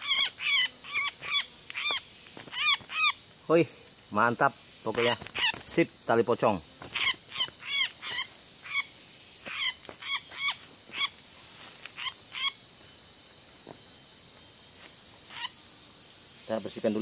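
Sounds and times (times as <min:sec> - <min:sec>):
bird calling: 0:00.0 - 0:03.2, 0:06.8 - 0:12.6
high insect drone: 0:00.0 - 0:17.0.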